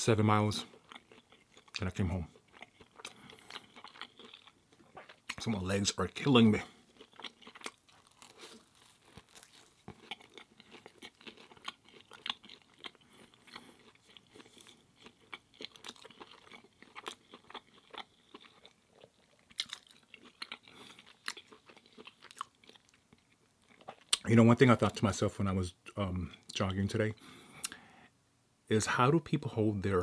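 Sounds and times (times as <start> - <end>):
person chewing crunchy food: 0.6 - 5.6, 6.2 - 24.3.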